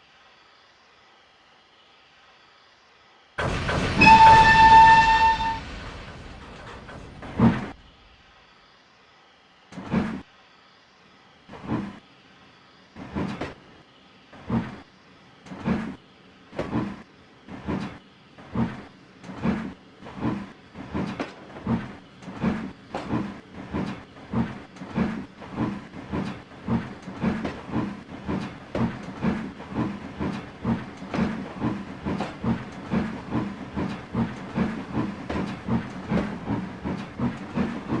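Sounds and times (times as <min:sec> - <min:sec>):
steam locomotive chuffing: 0:03.4 - 0:08.2, 0:14.4 - 0:38.0.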